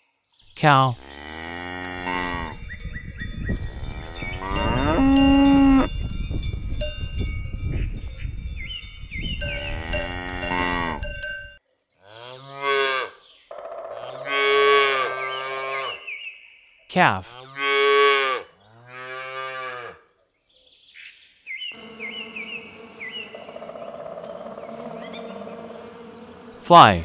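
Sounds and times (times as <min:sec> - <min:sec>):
cows mooing: 0:01.0 - 0:02.6, 0:03.6 - 0:05.9, 0:09.4 - 0:11.0, 0:21.8 - 0:26.6
cowbells clanking: 0:09.4 - 0:11.5.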